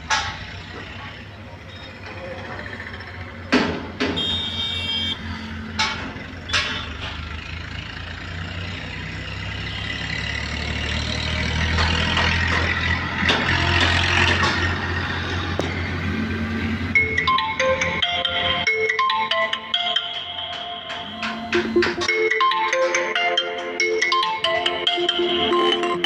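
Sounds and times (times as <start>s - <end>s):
truck engine humming: 0.0s - 26.0s
sharp knocks: 20.5s - 22.3s.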